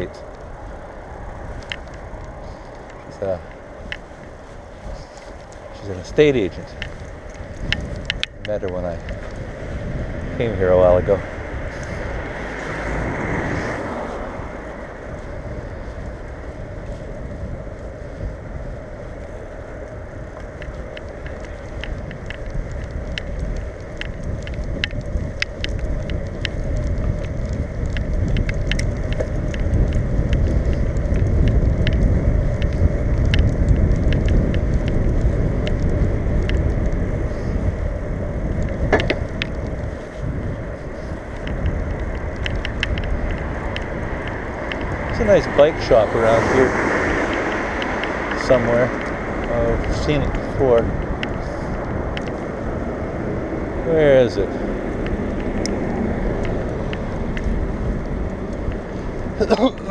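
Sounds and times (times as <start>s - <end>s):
bicycle road noise: 0.0s - 59.9s
wind rumbling on microphone: 0.0s - 59.9s.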